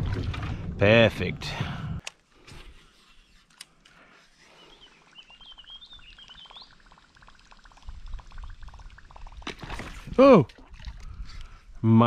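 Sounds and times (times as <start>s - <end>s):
low rumble: 0.0s - 2.0s
small bird twittering: 4.6s - 6.9s.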